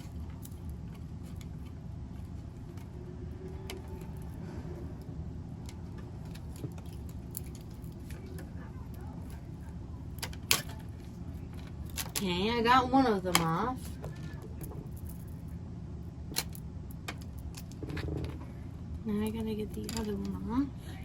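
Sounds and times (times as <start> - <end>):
small clicks and handling noises: 0.0 - 4.4, 5.6 - 12.3, 19.2 - 20.5
steady low hum: 0.0 - 21.0.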